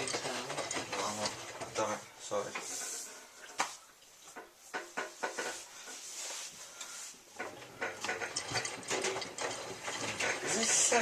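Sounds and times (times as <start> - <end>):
soft rubbing brushing: 1.3 - 7.4.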